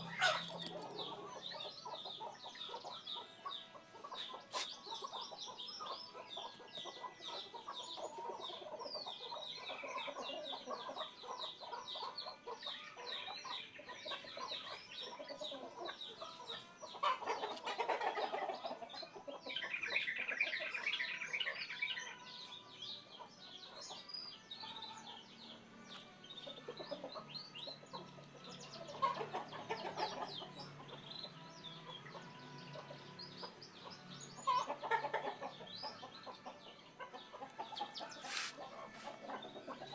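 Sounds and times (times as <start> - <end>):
bird clucking calls: 0.0 - 21.8, 26.4 - 31.1, 31.9 - 39.9
birds chirping: 0.0 - 39.9.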